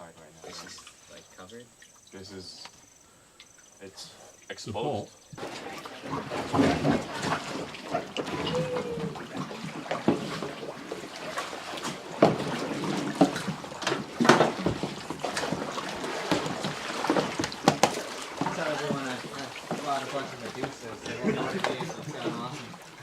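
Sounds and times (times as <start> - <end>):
water splashing and trickling: 0.0 - 2.7, 3.5 - 23.0
sharp knocks and clatter: 11.3 - 20.8.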